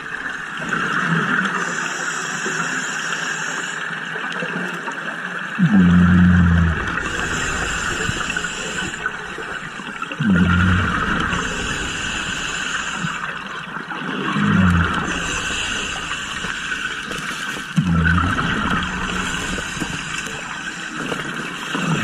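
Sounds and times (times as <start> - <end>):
regulator breathing hiss: 1.6 - 3.9, 7.1 - 9.6, 11.4 - 13.3
underwater bubbles rumbling: 5.4 - 22.0.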